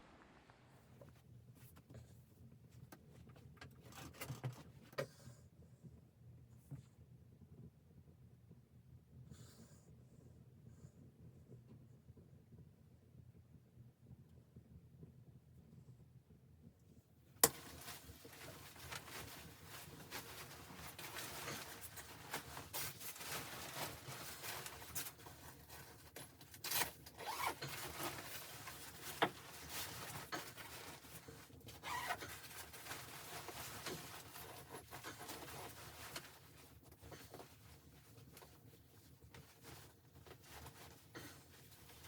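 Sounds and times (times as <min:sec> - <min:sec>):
rustling and scraping: 0:01.0 - 0:05.1, 0:17.4 - 0:42.0.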